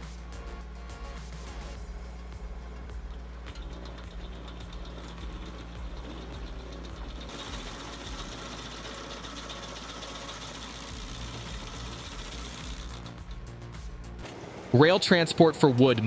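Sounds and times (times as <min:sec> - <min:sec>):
bright noisy machine sound: 0:00.0 - 0:16.0
engine droning: 0:00.0 - 0:16.0.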